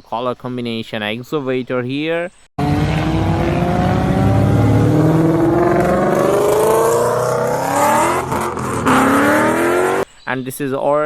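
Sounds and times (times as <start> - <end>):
car engine accelerating: 2.6 - 10.0.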